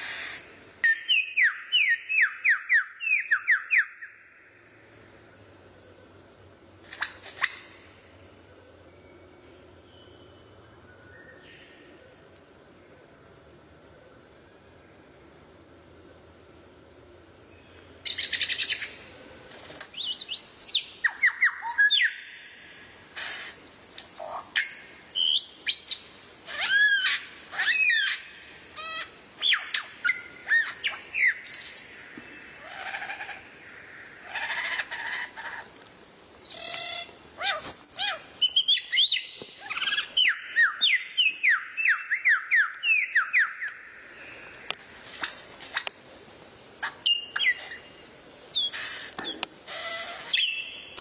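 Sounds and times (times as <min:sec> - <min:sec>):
songbird singing: 0:00.0 - 0:51.0.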